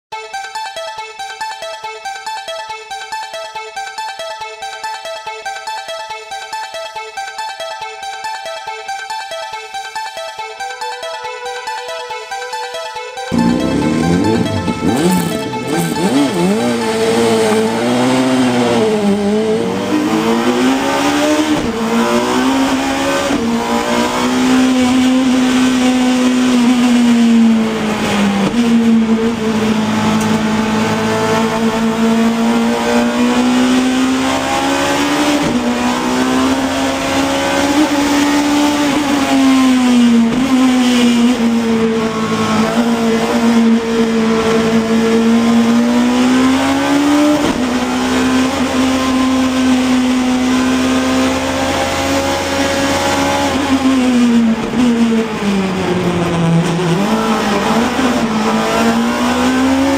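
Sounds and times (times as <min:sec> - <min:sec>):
motorcycle engine revving high: 0:13.3 - 0:59.9.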